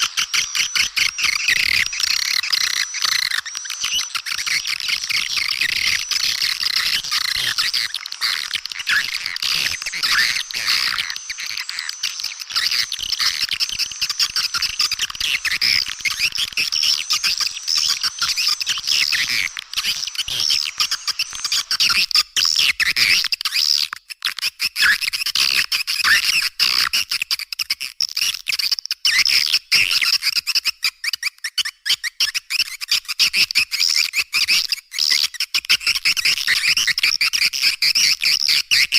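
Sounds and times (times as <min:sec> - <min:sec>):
swiftlets twittering chorus: 0:00.0 - 0:22.0.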